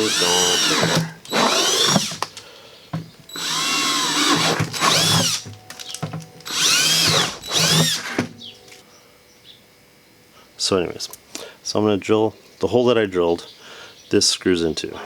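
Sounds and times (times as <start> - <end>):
power drill whining: 0.0 - 2.4, 3.3 - 8.3.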